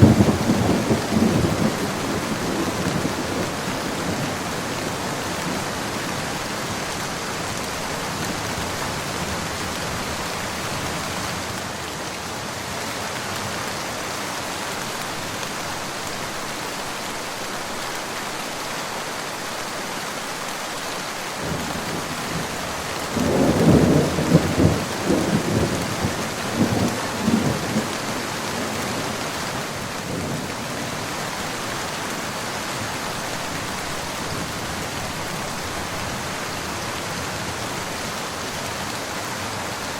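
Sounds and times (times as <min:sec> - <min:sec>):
thunder rumbling: 0:00.0 - 0:06.4, 0:21.4 - 0:31.1
steady rain: 0:00.0 - 0:39.9.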